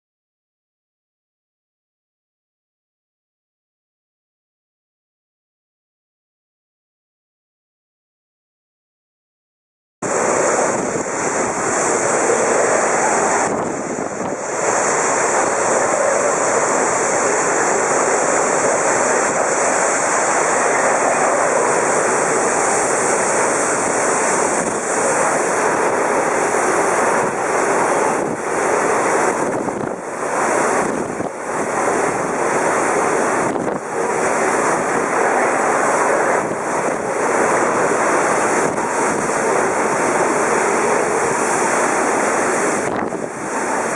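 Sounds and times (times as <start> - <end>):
strong wind roaring: 10.0 - 43.9
wind buffeting microphone: 10.0 - 43.9.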